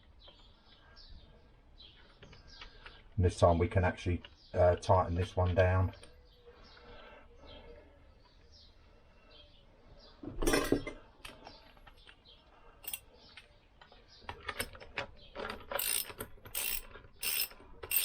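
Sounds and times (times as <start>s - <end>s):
metal tools clattering: 10.3s - 11.0s, 12.8s - 13.0s
ratchet wrench clicking: 15.7s - 18.0s.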